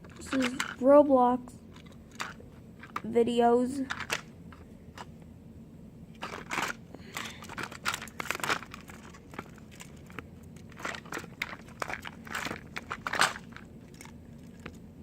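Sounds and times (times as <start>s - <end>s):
plastic packaging crinkling: 6.2s - 14.8s.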